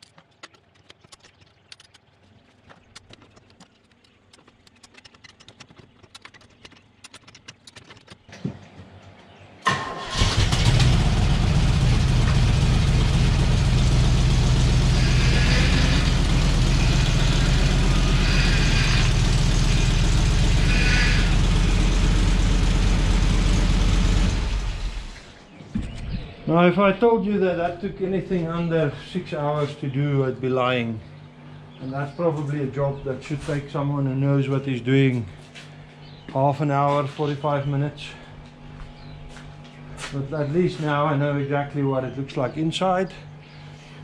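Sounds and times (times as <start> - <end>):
faint clicks: 0.0 - 8.3
car engine starting and idling: 9.6 - 25.4.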